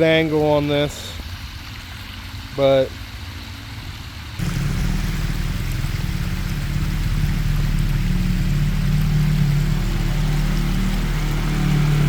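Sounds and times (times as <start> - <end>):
off-road vehicle engine under throttle: 4.4 - 12.0.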